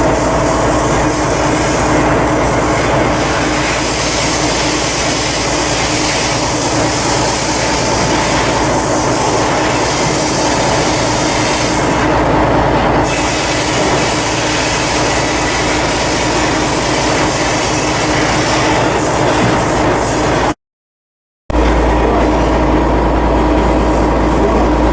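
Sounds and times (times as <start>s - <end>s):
loud machinery noise: 0.0s - 20.6s, 21.5s - 24.9s
constant hum: 21.5s - 24.9s.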